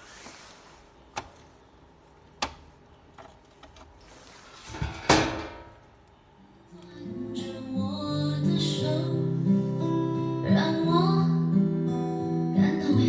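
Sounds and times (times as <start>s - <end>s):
loud clunk: 4.7s - 5.8s.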